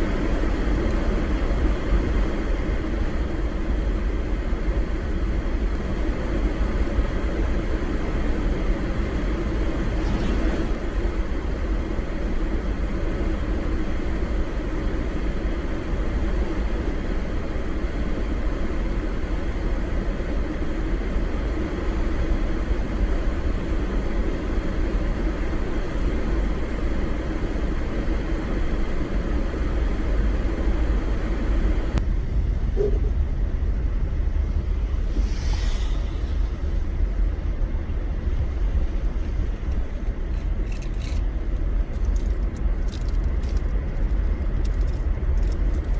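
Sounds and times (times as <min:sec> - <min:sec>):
road and engine rumble: 0:00.0 - 0:45.9
higher hiss: 0:34.9 - 0:36.9.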